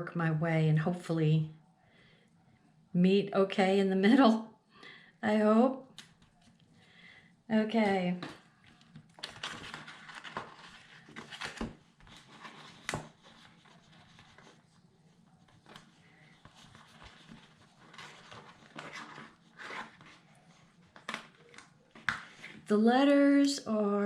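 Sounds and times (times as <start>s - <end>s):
paper rustling: 8.7s - 22.7s.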